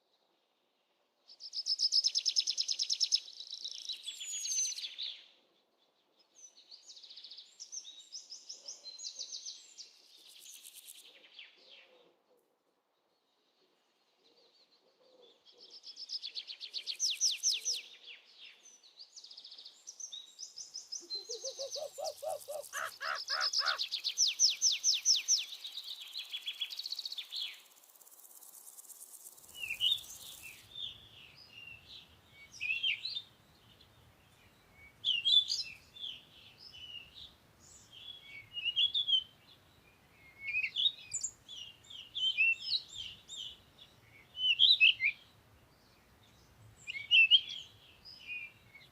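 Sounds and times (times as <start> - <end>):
trilling bird calls: 21.0 - 25.7.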